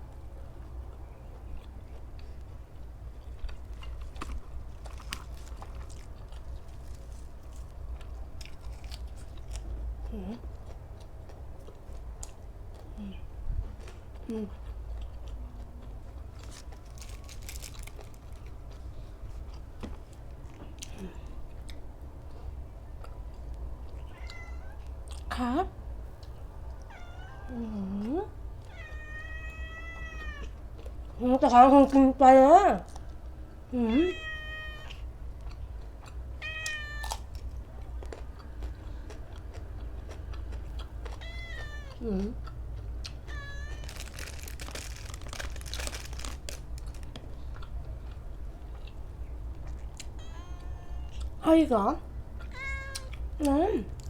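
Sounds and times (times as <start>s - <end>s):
chewing and crunching: 0.0s - 25.4s, 30.0s - 31.2s, 32.8s - 33.6s, 34.8s - 50.2s, 51.0s - 51.4s
cat meowing: 24.1s - 24.9s, 26.9s - 27.6s, 28.6s - 30.6s, 33.9s - 35.1s, 36.4s - 37.3s, 41.1s - 42.0s, 43.2s - 45.2s, 50.0s - 51.3s, 52.4s - 53.2s.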